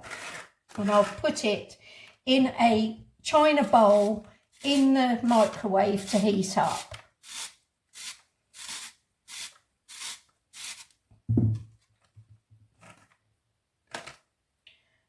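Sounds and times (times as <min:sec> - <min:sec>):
heavy thump: 0:11.3 - 0:11.7.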